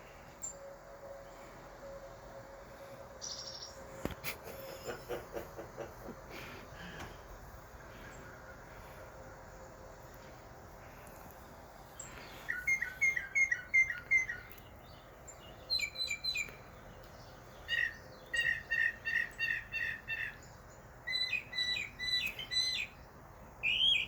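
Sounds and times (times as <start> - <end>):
bird chirping: 3.2 - 4.0, 10.8 - 24.0.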